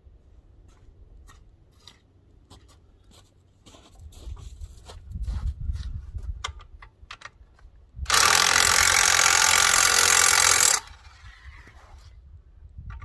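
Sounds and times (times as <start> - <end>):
impact gun burst: 8.1 - 11.0.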